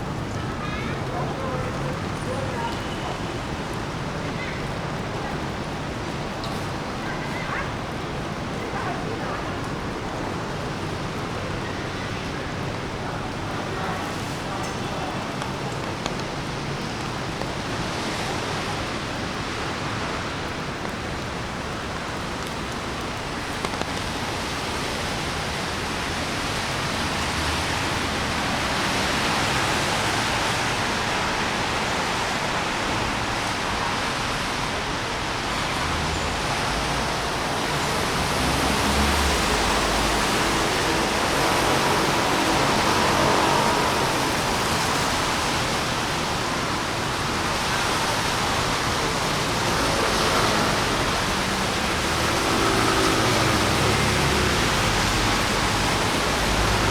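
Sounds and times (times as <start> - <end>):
rain on street: 0.0 - 56.9
traffic: 0.0 - 56.9
vehicle rumbling by: 35.7 - 46.8, 47.6 - 56.9.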